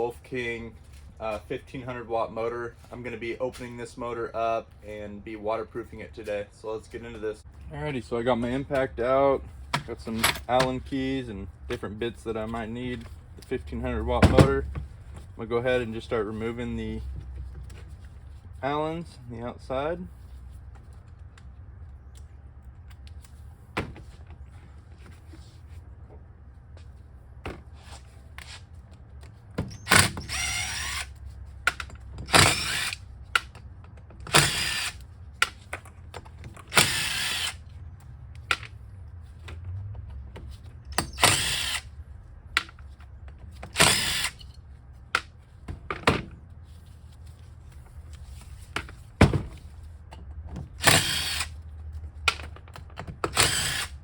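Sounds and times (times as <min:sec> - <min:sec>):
impact drill bursts: 0:29.8 - 0:31.1, 0:32.3 - 0:33.0, 0:34.3 - 0:35.0, 0:36.7 - 0:37.6, 0:41.0 - 0:41.9, 0:43.8 - 0:44.4, 0:50.8 - 0:51.5, 0:53.3 - 0:54.0.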